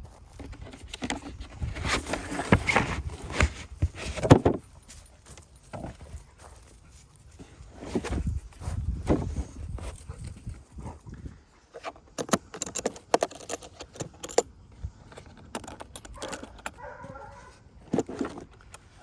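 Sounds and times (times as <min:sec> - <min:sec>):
plastic case clicking and rattling: 0:11.8 - 0:14.5, 0:15.1 - 0:18.9.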